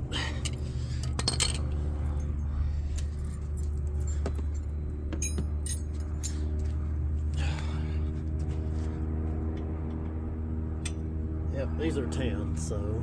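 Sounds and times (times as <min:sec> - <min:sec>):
steady low hum: 0:00.0 - 0:13.0
metal tools clinking: 0:00.2 - 0:02.4, 0:05.1 - 0:06.5.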